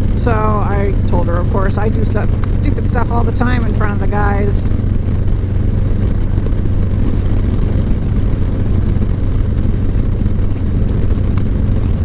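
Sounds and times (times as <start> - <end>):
road noise: 0.0 - 12.0
vehicle engine drone: 0.0 - 12.0.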